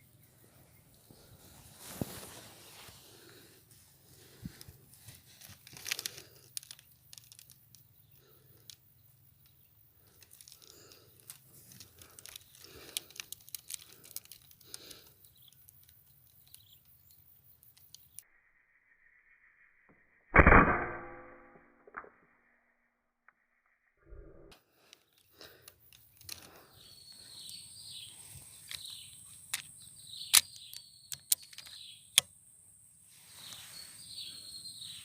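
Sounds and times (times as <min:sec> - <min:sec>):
rustling and handling noise: 0:01.0 - 0:17.0
air rifle shot: 0:20.4 - 0:21.4.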